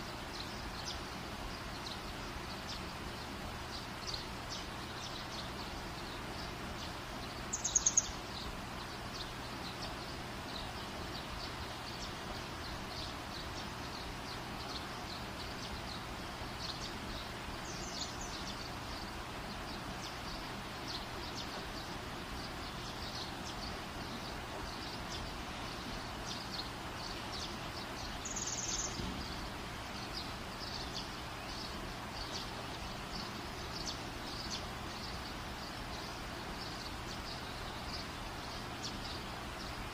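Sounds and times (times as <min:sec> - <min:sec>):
birds chirping: 0:00.0 - 0:39.9
steady hiss: 0:00.0 - 0:39.9
bird trilled chirps: 0:07.5 - 0:08.2.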